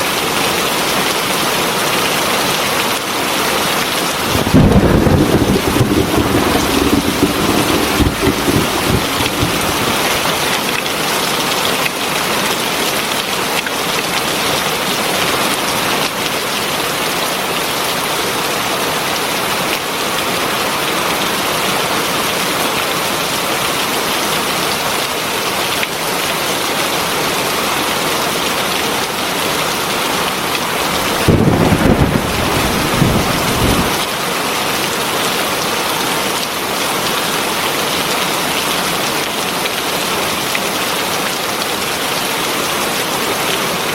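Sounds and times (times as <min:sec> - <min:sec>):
heavy rain falling: 0:03.9 - 0:11.7, 0:24.9 - 0:43.9
low rumble: 0:04.2 - 0:10.5.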